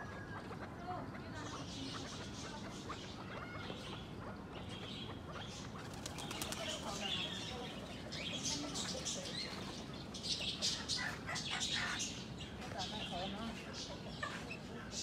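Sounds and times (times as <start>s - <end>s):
high chirping bird calls: 0.0s - 15.0s
bird wings flapping: 5.8s - 7.4s.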